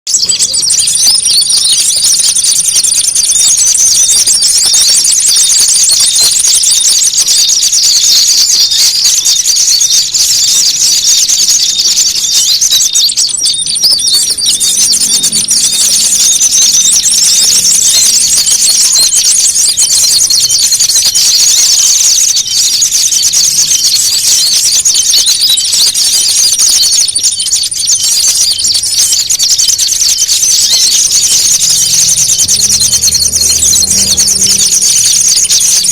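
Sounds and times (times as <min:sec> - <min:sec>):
songbirds chattering and trilling: 0:00.1 - 0:35.9
thin steady high note: 0:30.3 - 0:35.9.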